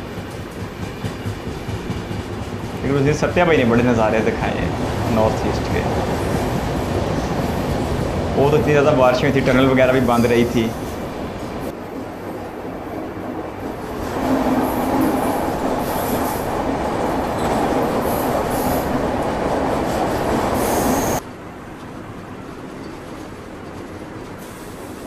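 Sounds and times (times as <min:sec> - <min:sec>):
train clattering on rails: 0:00.0 - 0:12.2, 0:13.6 - 0:21.2.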